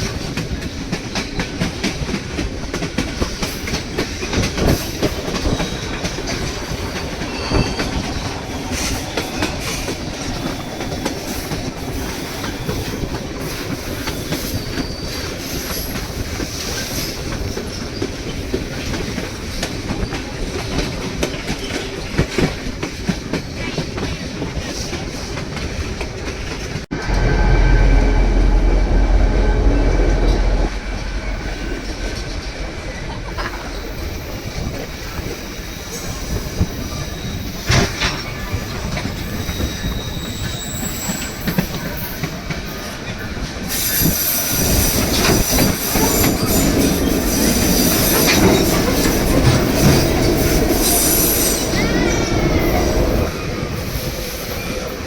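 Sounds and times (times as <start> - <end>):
deep rumble: 26.9 - 35.2.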